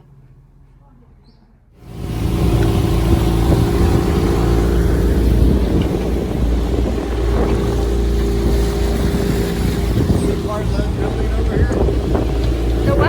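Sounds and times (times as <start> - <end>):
boat engine humming: 1.8 - 13.0
rushing water noise: 1.8 - 13.0.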